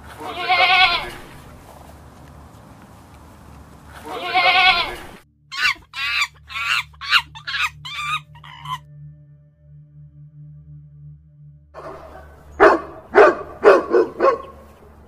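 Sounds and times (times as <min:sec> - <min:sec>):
goat bleating: 0:00.1 - 0:01.6, 0:03.9 - 0:08.8
short high animal calls: 0:04.0 - 0:08.8.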